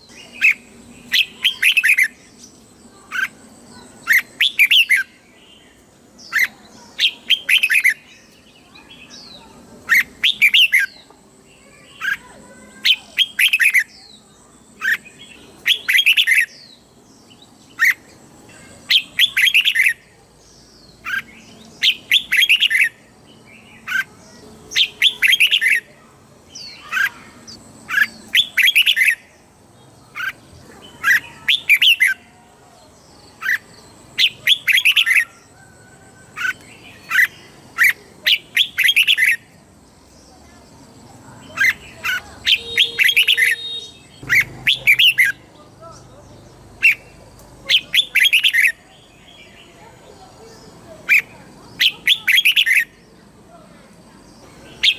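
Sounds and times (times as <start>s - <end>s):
bird warbling: 41.5s - 46.0s.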